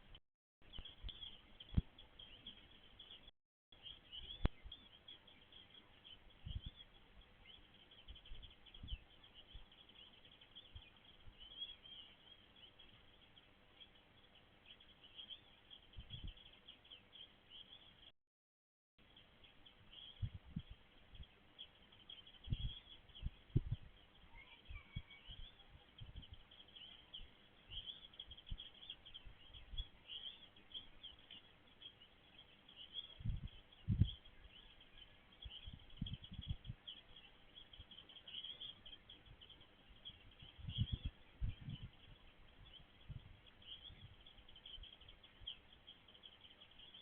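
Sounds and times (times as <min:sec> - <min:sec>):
distant small birds chirping: 0:00.0 - 0:18.1, 0:19.0 - 0:47.0
soft low thumps: 0:22.4 - 0:24.0, 0:40.0 - 0:44.3.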